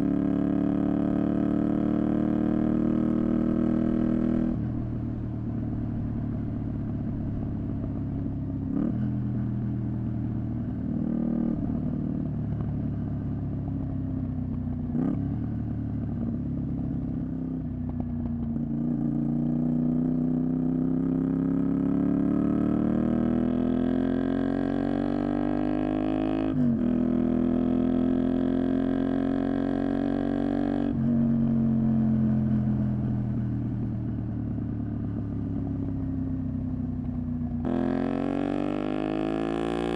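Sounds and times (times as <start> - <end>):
motorcycle engine revving: 34.9 - 39.9.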